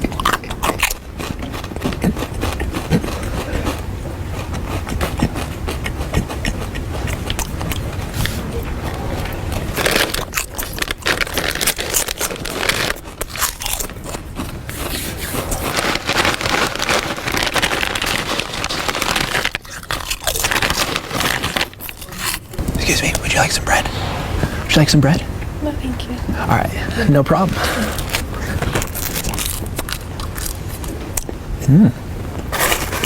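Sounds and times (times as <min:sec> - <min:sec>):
crunching and chewing snacks: 0:00.0 - 0:22.6, 0:27.9 - 0:31.3, 0:32.4 - 0:33.0
packaging crinkling: 0:09.8 - 0:14.2, 0:14.8 - 0:22.4.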